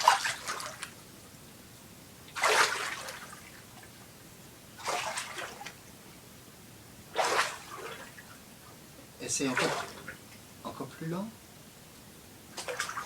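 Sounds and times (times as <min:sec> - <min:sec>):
water splashing in pool: 0:00.0 - 0:01.0, 0:02.3 - 0:03.9, 0:04.8 - 0:05.8, 0:07.1 - 0:08.3, 0:09.4 - 0:10.2, 0:12.6 - 0:13.0.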